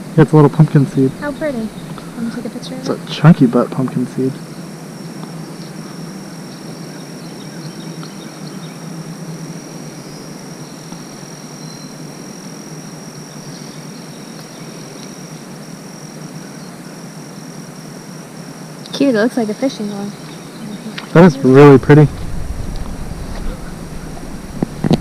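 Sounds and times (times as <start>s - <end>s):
insects droning: 0.0s - 25.0s
low even hiss: 20.8s - 25.0s.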